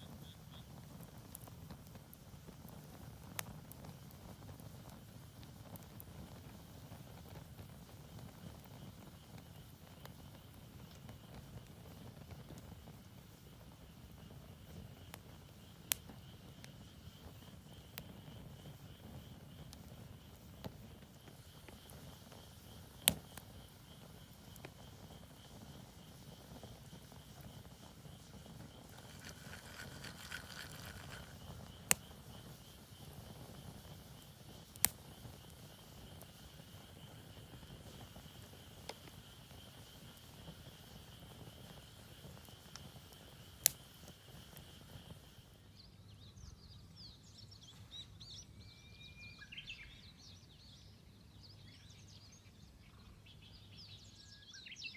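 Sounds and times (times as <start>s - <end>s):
insects trilling: 0.0s - 1.8s, 5.8s - 45.6s
campfire wood popping: 0.0s - 45.5s.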